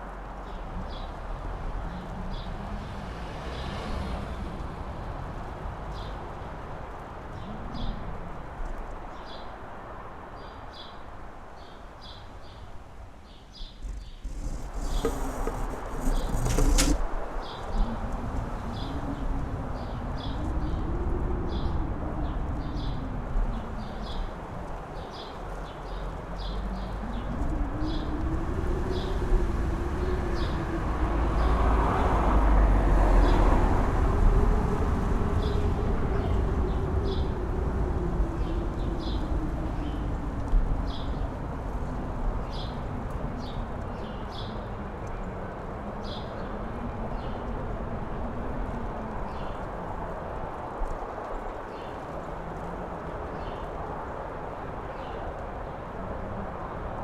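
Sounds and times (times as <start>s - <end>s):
wind gusting and howling: 0.0s - 57.0s
low rumble: 13.6s - 23.3s.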